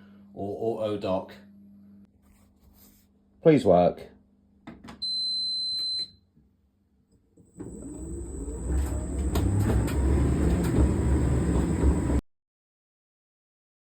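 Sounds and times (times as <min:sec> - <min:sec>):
tumble dryer drum rumbling: 0:07.5 - 0:12.2.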